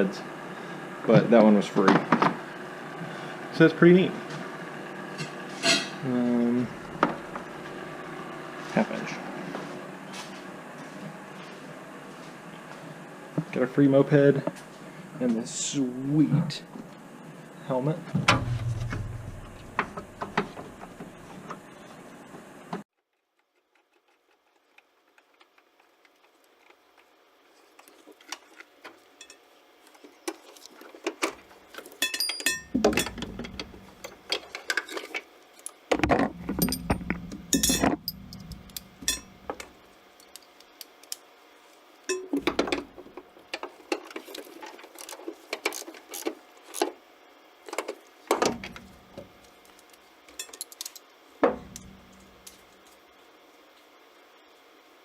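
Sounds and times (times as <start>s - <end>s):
heavy metal clunks: 18.2s - 21.3s, 32.5s - 34.2s, 35.9s - 39.8s, 51.4s - 52.6s
tools and metal hardware clinking: 18.3s - 21.2s, 29.2s - 29.4s, 31.8s - 35.2s, 36.0s - 39.8s, 42.1s - 43.0s, 48.4s - 49.4s, 50.3s - 52.8s.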